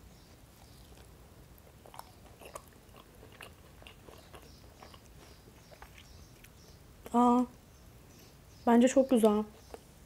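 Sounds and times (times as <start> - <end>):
person chewing food: 0.5 - 6.8.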